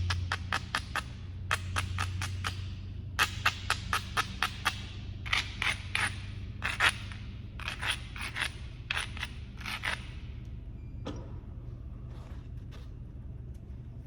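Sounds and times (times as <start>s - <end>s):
knapping tool rasping on stone: 0.0s - 10.3s.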